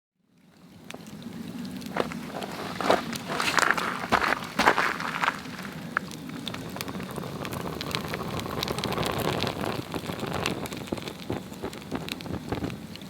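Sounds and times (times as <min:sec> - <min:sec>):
log fire crackling: 0:00.5 - 0:13.0
hiss of flame: 0:05.0 - 0:13.0.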